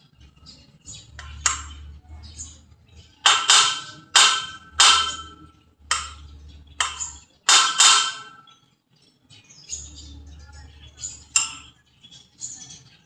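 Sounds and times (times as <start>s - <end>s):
hammer striking metal: 1.2s - 1.9s, 3.2s - 8.4s, 11.3s - 11.7s.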